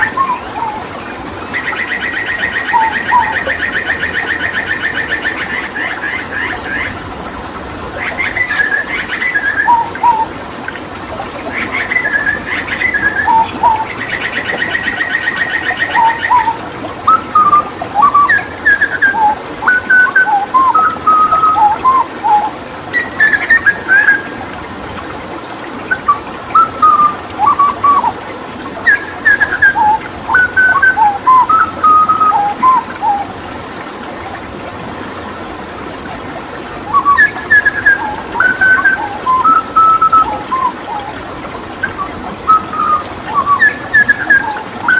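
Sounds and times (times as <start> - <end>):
bird singing fluting whistles: 0.0 - 0.8, 1.6 - 5.7, 8.2 - 10.3, 11.6 - 24.4, 25.9 - 28.2, 28.8 - 33.3, 36.9 - 41.1, 41.8 - 44.9
rapid buzzy bird trill: 0.0 - 7.0, 8.0 - 10.3, 11.5 - 24.5, 36.9 - 44.9
rushing water: 0.0 - 44.9.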